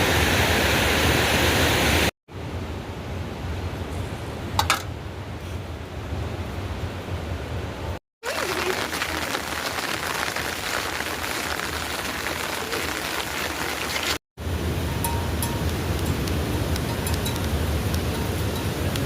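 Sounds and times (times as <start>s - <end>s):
heavy rain falling: 8.2s - 19.0s.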